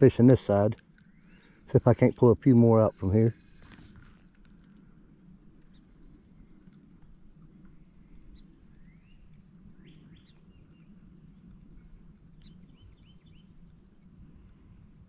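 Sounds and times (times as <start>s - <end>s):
low background rumble: 0.0s - 15.0s
birds whistling and chirping: 1.0s - 1.7s, 8.1s - 14.0s.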